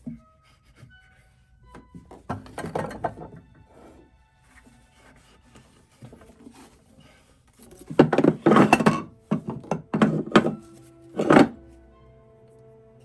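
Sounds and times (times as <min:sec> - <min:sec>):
objects thunking and knocking: 0:00.0 - 0:01.0, 0:01.6 - 0:04.0, 0:05.4 - 0:11.7.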